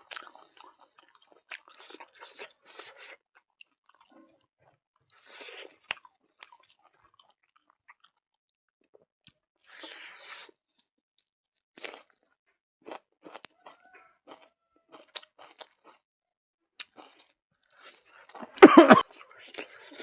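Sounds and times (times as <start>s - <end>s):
person chewing food: 0.1s - 4.4s, 5.1s - 8.3s, 11.8s - 16.0s, 16.8s - 20.0s.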